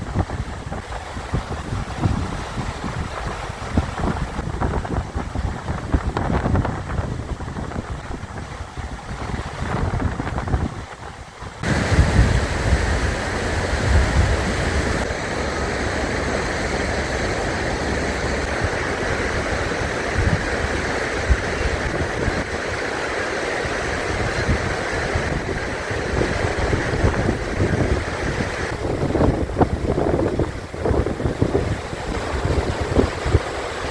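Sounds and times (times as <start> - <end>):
river rapids rushing: 0.0 - 33.9
wind buffeting microphone: 0.0 - 33.9.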